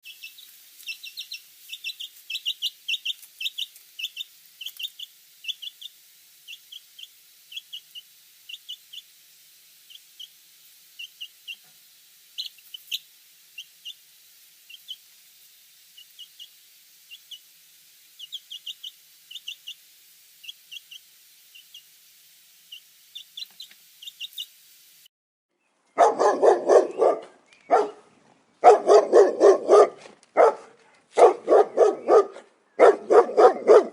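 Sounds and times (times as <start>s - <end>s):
small birds chirping: 0.0s - 9.2s, 9.8s - 22.0s, 22.6s - 24.6s, 25.5s - 28.7s
dog barking loudly: 26.0s - 33.9s.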